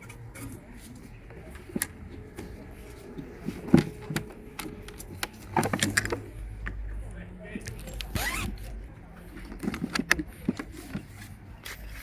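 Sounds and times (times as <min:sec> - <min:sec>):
hard objects clicking and knocking: 0:07.6 - 0:11.4.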